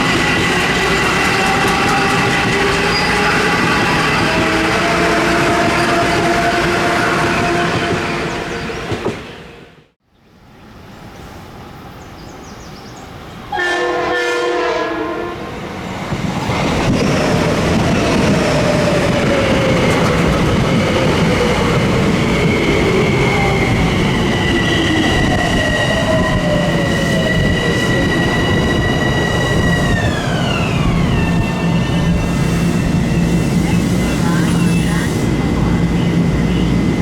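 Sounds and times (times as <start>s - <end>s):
train wheels on rails: 0.0s - 9.5s, 15.6s - 37.0s
train horn blast: 2.9s - 9.9s, 13.5s - 15.6s.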